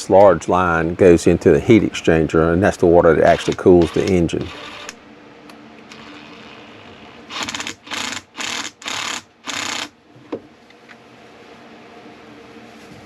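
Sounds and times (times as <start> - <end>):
ratchet wrench clicking: 3.3 - 5.0, 7.3 - 9.9.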